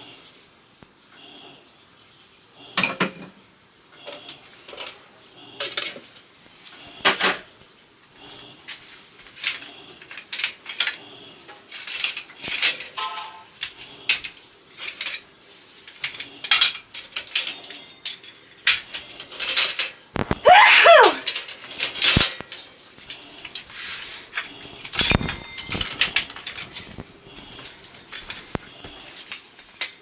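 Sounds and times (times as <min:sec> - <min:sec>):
dishes clinking and clattering: 0:02.8 - 0:03.4, 0:09.3 - 0:15.3, 0:15.9 - 0:20.0, 0:24.4 - 0:30.0.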